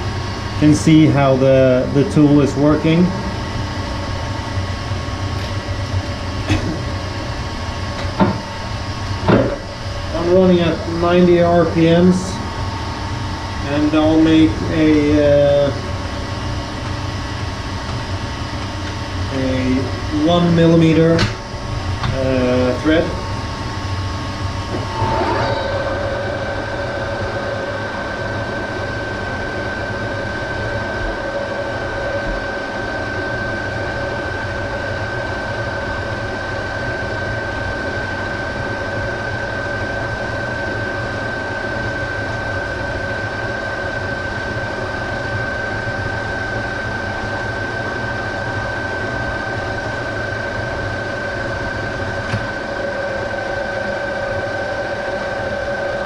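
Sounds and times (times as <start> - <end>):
metal lathe humming: 0.7 - 33.0.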